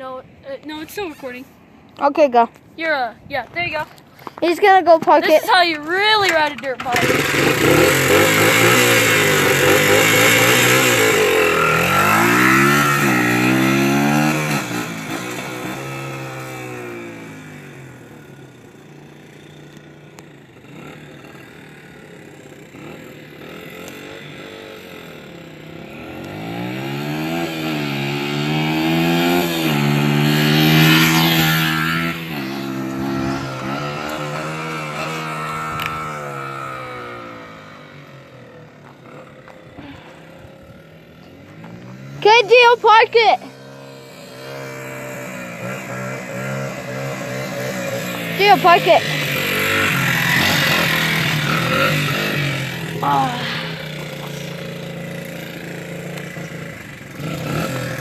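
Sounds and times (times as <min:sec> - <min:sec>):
dirt bike engine revving: 0:04.6 - 0:58.0.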